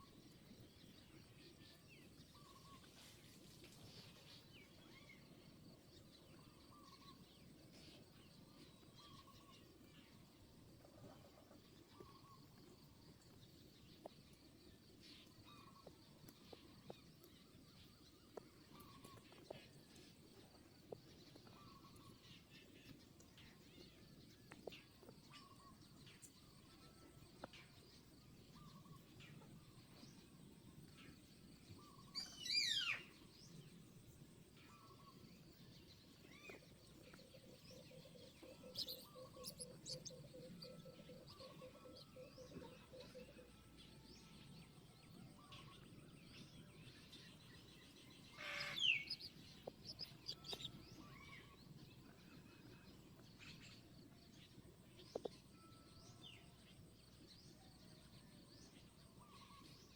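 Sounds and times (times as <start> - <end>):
bird chirps: 31.7 - 33.6, 35.9 - 59.9.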